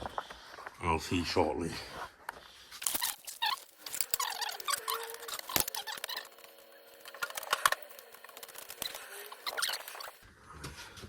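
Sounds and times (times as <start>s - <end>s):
metal parts clicking and clinking: 2.8s - 6.4s
short squeaks: 8.8s - 10.2s.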